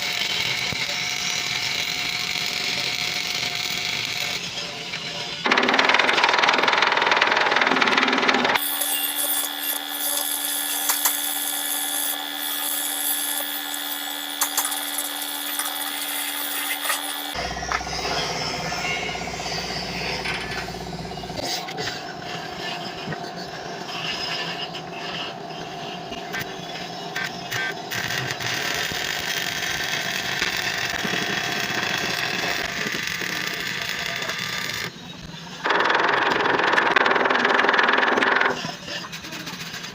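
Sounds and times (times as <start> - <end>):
power tool running: 0.0 - 39.9
welding arc crackling: 8.6 - 17.4.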